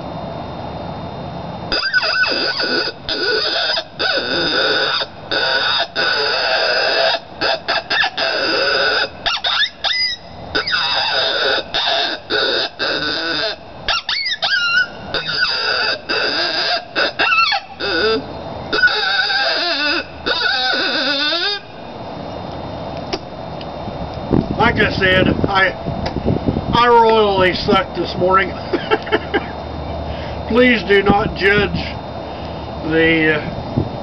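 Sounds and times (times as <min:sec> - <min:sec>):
coyote call barks and yelps: 0:01.7 - 0:21.7.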